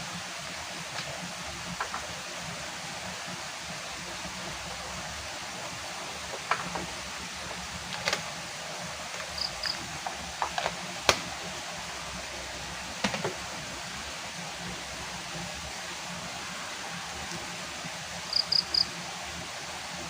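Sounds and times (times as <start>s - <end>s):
steady hiss: 0.0s - 20.0s
sharp clicks and knocks: 1.8s - 2.1s, 6.3s - 6.9s.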